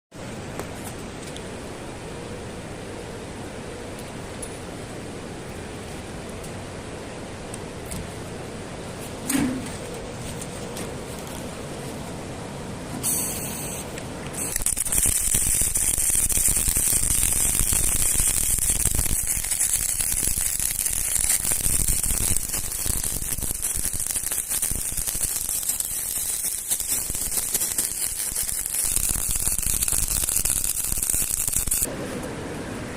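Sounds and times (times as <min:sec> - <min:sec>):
welding arc crackling hiss: 0:13.0 - 0:31.9.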